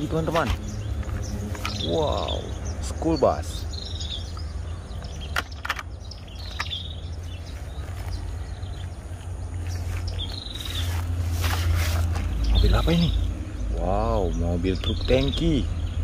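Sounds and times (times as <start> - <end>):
bird falling chirp: 3.8 - 8.9
loud rustle: 9.8 - 12.6.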